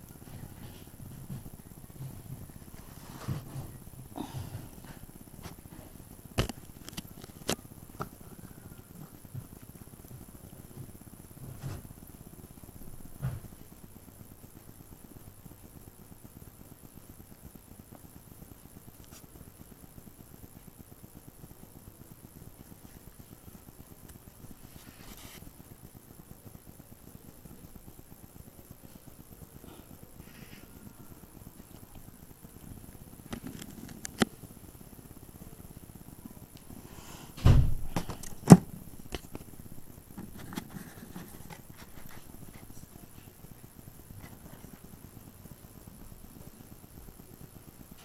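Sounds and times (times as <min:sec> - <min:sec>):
dull thump: 0:37.4 - 0:38.7.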